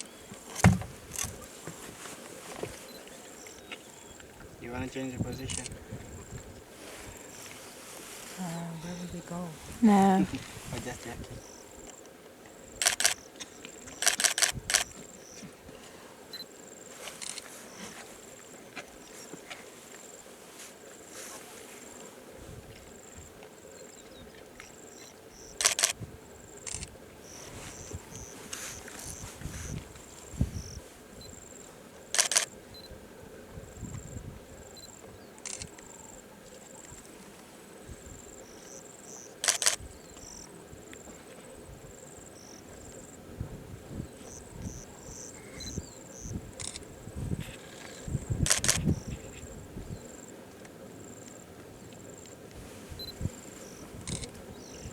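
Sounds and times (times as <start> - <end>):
insects chirping: 0.0 - 15.6, 16.2 - 54.9
camera shutter clicks: 12.8 - 13.2, 14.0 - 14.9, 25.6 - 26.0, 32.2 - 32.5, 39.4 - 39.8, 46.6 - 46.9, 48.5 - 48.8.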